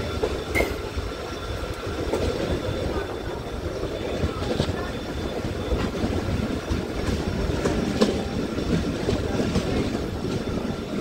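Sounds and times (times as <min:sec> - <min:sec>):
moving train rumble and clatter: 0:00.0 - 0:11.0.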